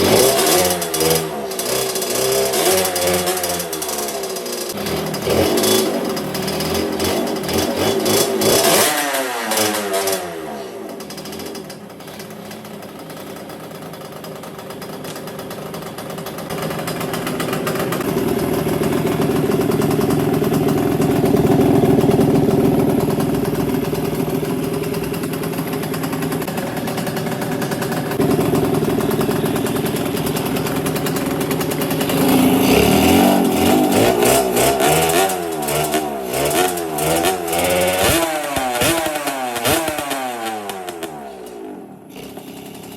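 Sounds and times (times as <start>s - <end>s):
two-stroke engine revving: 0.0s - 42.9s.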